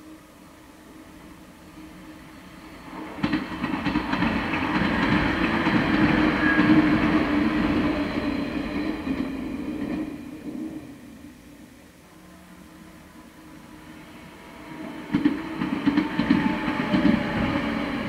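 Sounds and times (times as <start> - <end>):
train running rumble: 0.5 - 18.0.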